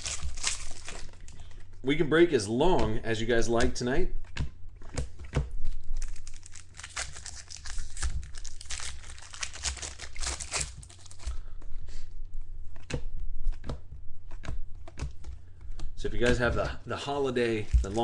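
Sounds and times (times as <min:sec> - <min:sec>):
card pack wrappers crinkling: 0:00.0 - 0:01.6, 0:05.7 - 0:11.5, 0:17.0 - 0:18.0.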